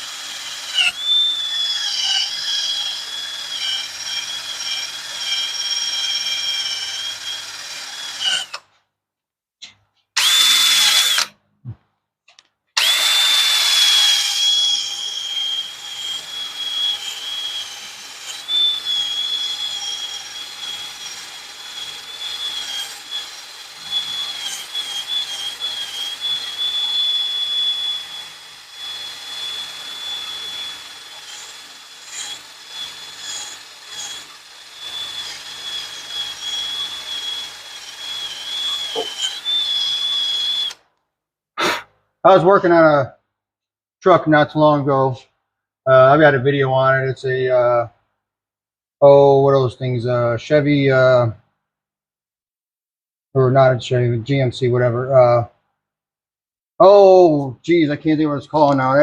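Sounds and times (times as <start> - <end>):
wire wheel scrubbing metal: 12.8 - 40.8.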